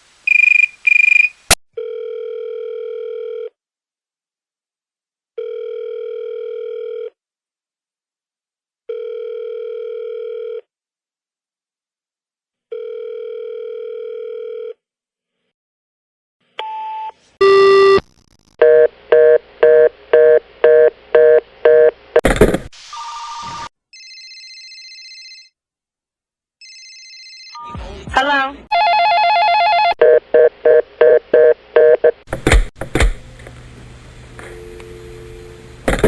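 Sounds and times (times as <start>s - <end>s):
telephone ringing tone: 1.8s - 3.5s, 5.4s - 7.1s, 8.9s - 10.6s, 17.4s - 21.9s, 24.0s - 25.6s, 26.6s - 27.7s, 28.7s - 32.0s
busy signal beeps: 17.4s - 18.0s.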